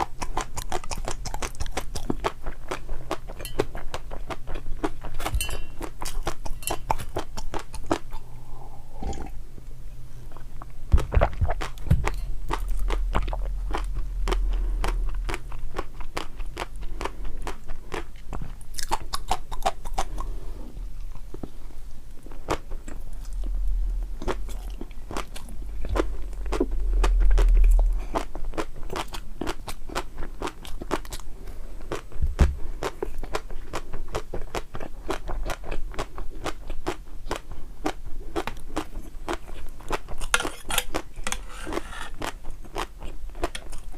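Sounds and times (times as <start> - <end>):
low thuds and rumbles: 10.9 - 16.6, 23.0 - 29.0, 32.2 - 32.7
person crunching crisp food: 11.2 - 20.4.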